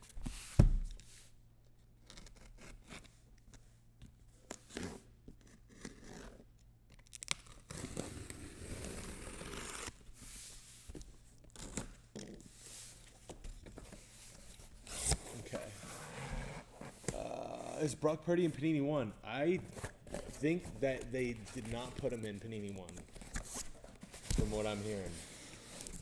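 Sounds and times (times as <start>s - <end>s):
wrapper and cardboard tearing: 7.0s - 10.0s, 19.7s - 26.0s
packaging rustling: 19.5s - 26.0s.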